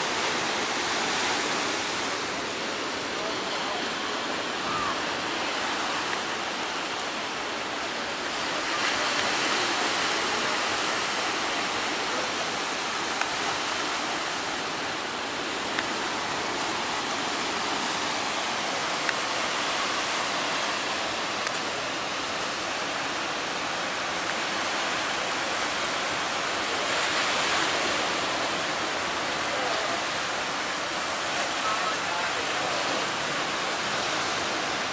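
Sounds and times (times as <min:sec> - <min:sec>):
heavy surf breaking: 0:00.0 - 0:34.9.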